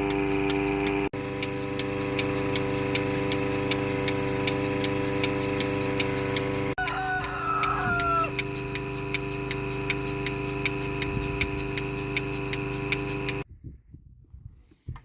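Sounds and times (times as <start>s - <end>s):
small motor running: 0.0s - 13.5s
sharp regular ticking: 0.1s - 13.4s.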